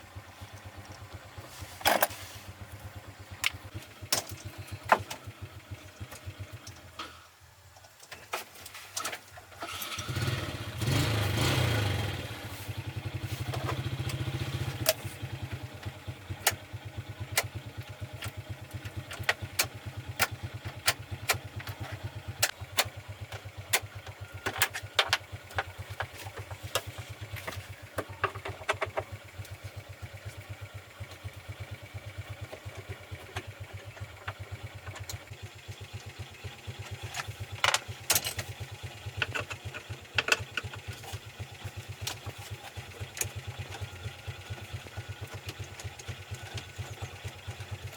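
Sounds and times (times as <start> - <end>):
truck engine starting and idling: 9.6 - 47.9.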